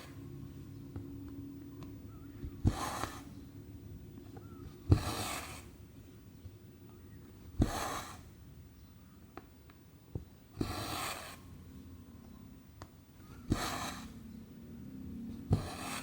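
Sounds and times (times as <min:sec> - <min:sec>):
thread rasping through fabric: 0:15.5 - 0:16.0.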